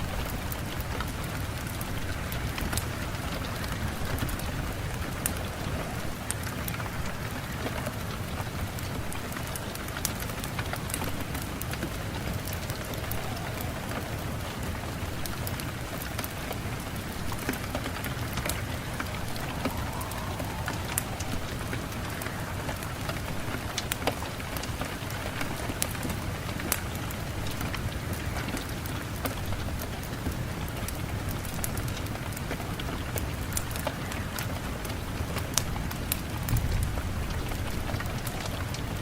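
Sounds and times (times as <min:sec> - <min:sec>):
raindrops tapping: 0:00.0 - 0:39.0
steady rain falling: 0:00.0 - 0:39.0.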